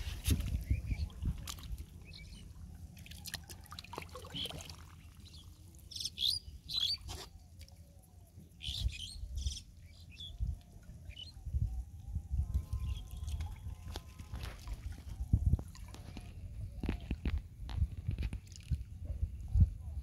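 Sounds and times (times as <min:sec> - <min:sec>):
birds chirping: 0:04.3 - 0:07.6.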